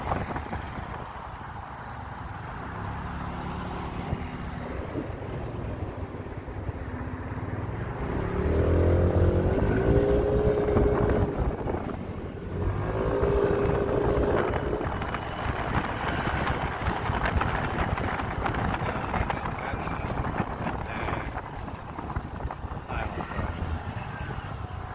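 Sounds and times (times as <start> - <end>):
wind rushing over microphone: 0.0 - 24.9
motorcycle engine pulling away: 2.4 - 20.4.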